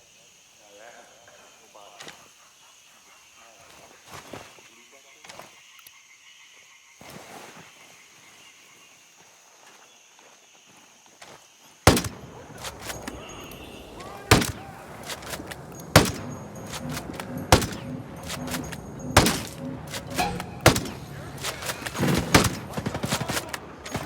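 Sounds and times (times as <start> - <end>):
rifle shots with echo: 11.9 - 24.0.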